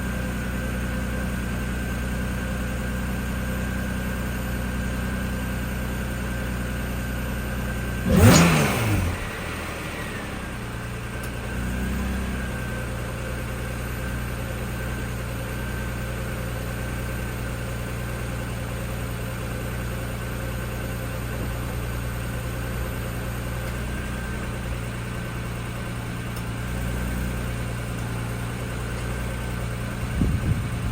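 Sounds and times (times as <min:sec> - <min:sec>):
car engine idling: 0:00.0 - 0:30.9
engine revving: 0:07.8 - 0:12.8.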